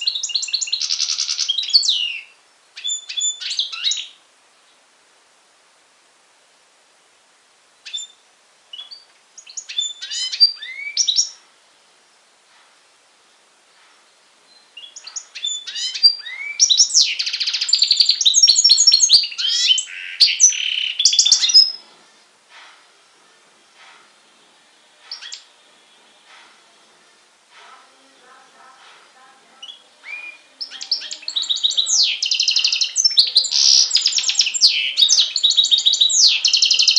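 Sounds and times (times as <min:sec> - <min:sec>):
bird singing trills: 0:00.0 - 0:04.8, 0:07.8 - 0:11.4, 0:14.1 - 0:22.3, 0:23.6 - 0:26.0, 0:29.3 - 0:36.9.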